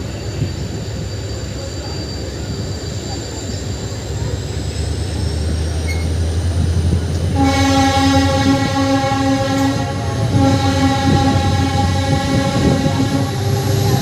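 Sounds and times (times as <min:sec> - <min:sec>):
train rumbling: 0:00.0 - 0:14.0
locomotive horn blast: 0:07.2 - 0:14.0.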